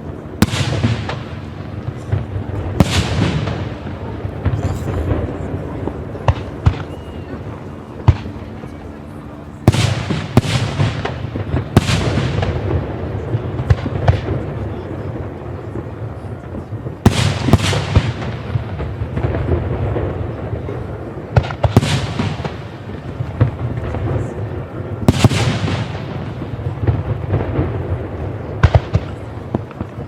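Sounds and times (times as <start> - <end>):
rumble of fireworks: 0.0 - 30.0
firework shell bursts with crackling: 0.4 - 5.4.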